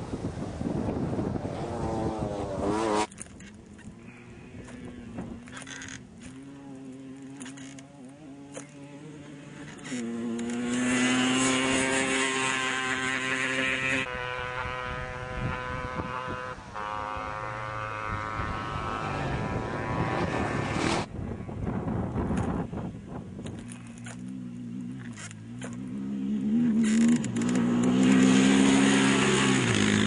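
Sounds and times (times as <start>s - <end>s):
motorcycle engines at full throttle: 0.0s - 30.0s.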